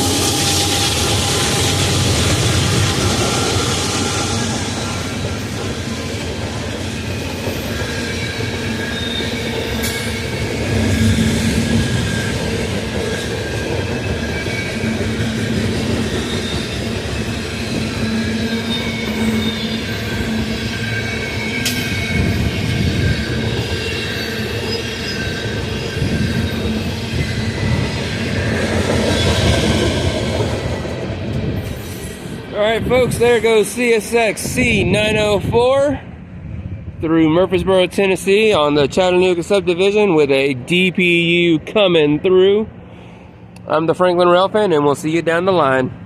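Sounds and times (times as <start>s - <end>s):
high wheel squeal: 0.0s - 31.0s
train wheels rumbling on rail: 0.0s - 46.0s.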